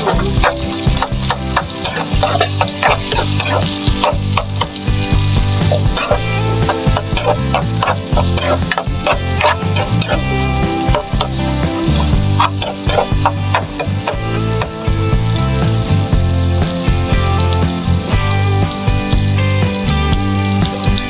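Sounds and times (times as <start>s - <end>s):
spatula scraping pan: 0.0s - 15.0s
onions sizzling in hot oil: 0.0s - 21.0s.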